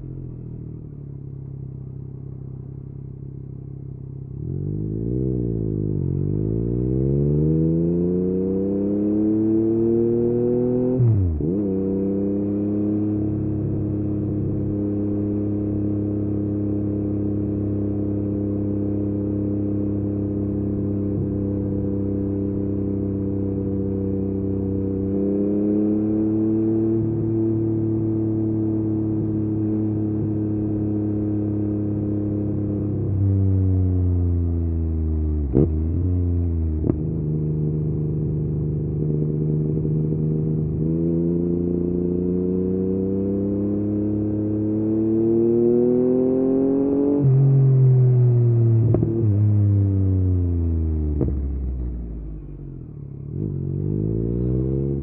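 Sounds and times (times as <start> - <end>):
motorcycle engine revving: 4.3 - 33.3, 35.1 - 55.0
motorcycle throttle blips: 35.4 - 42.0, 48.2 - 50.0, 50.6 - 55.0.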